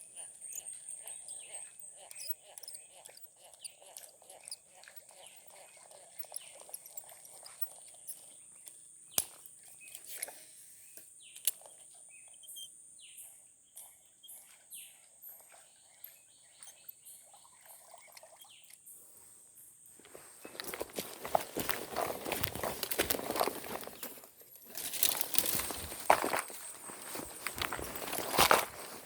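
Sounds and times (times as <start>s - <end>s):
bird chirps: 0.0s - 10.1s, 10.9s - 19.7s
small clicks: 11.0s - 12.4s.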